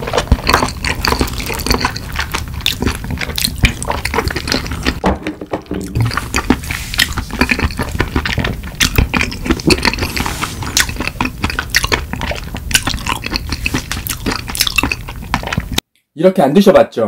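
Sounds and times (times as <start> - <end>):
wet chewing smacks and clicks: 0.0 - 5.0, 5.8 - 15.8.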